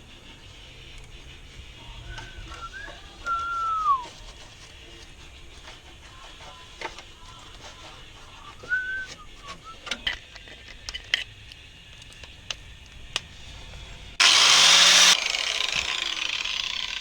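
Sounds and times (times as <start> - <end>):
person whistling: 2.0 - 4.2, 8.4 - 9.9.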